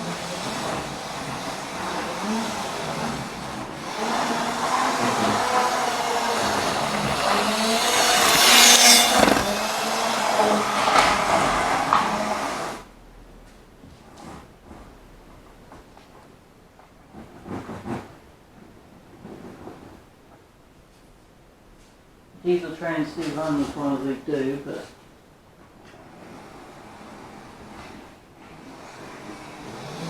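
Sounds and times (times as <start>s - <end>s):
electric motor whining: 0.0s - 12.8s
wheels rumbling on track: 0.0s - 12.8s.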